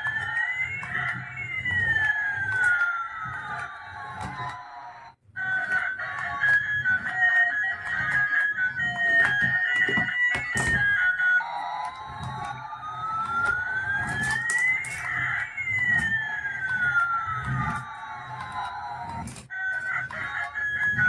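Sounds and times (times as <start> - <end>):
siren-like electronic tone: 0.0 - 21.0.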